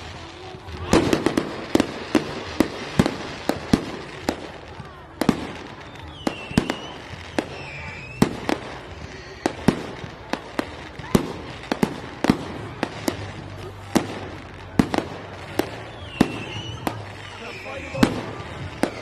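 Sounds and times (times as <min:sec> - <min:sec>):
fireworks bangs: 0:00.0 - 0:19.0
wavering firework whistle: 0:05.6 - 0:09.7, 0:15.4 - 0:19.0.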